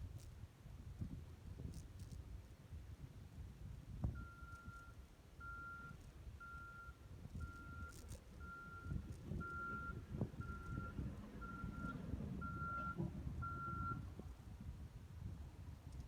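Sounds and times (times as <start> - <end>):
reversing alarm beeping: 4.2 - 14.1
low engine rumble: 5.4 - 16.0.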